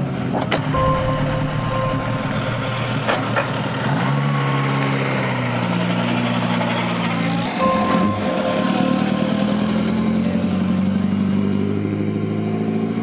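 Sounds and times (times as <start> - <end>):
steady high tone: 0.8 - 5.3, 7.5 - 10.8.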